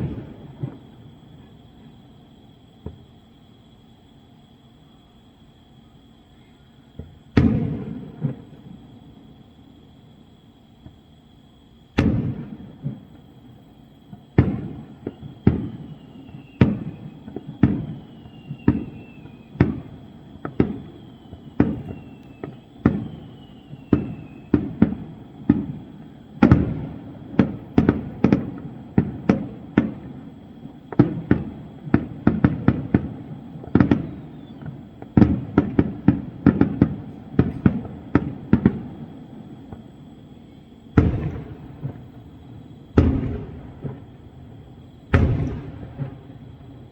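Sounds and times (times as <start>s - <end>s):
fireworks bangs: 0.0s - 2.0s, 6.9s - 9.1s, 11.9s - 46.9s
falling firework whistles: 0.0s - 46.9s.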